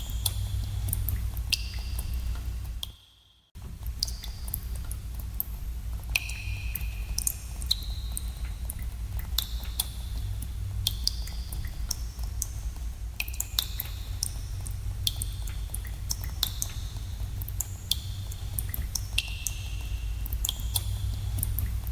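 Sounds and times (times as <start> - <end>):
water drops plinking into pools: 0.0 - 3.0, 6.1 - 10.0, 10.8 - 12.6, 13.2 - 21.9.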